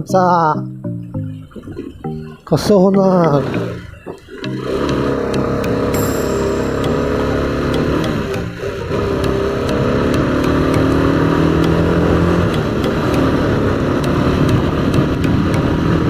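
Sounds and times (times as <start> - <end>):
motorcycle engine running: 3.2 - 16.0
wind rushing over microphone: 11.0 - 16.0.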